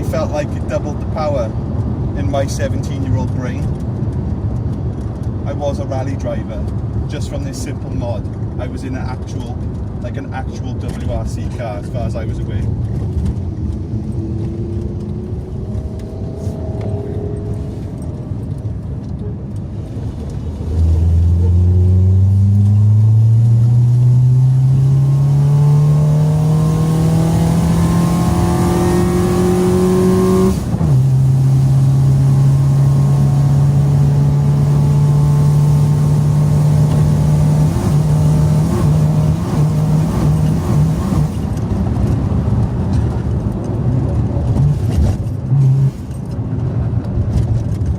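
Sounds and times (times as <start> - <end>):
car engine accelerating: 12.6 - 43.2, 44.0 - 46.6.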